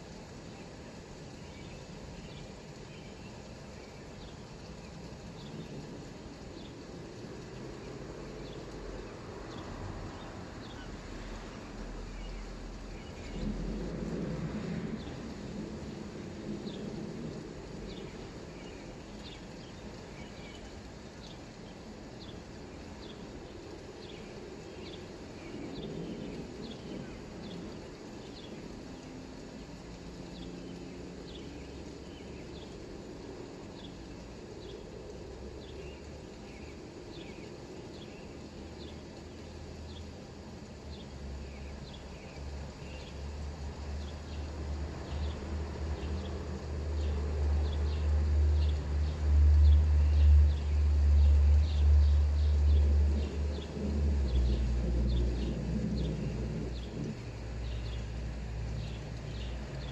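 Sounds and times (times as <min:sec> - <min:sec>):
light rain hiss: 0:00.0 - 0:59.9
low rumble: 0:11.9 - 0:19.0, 0:48.7 - 0:59.8.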